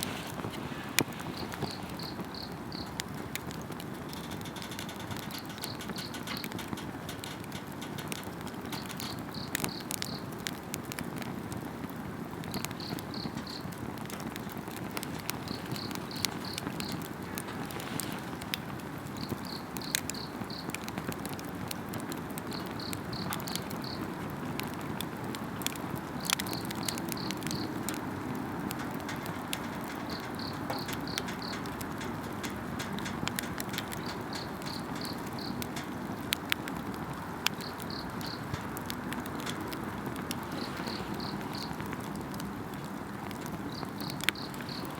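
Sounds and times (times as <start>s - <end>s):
campfire crackling and popping: 0.0s - 44.9s
insect chirping: 1.2s - 3.0s, 30.0s - 31.6s, 34.0s - 35.6s.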